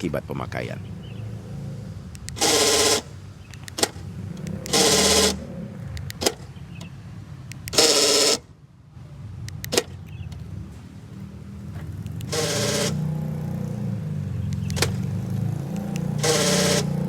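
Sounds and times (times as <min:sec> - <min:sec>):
actuator motor buzzing: 0:01.0 - 0:06.4, 0:07.5 - 0:08.5, 0:12.0 - 0:17.0
sharp click: 0:09.4 - 0:10.4, 0:14.5 - 0:15.0.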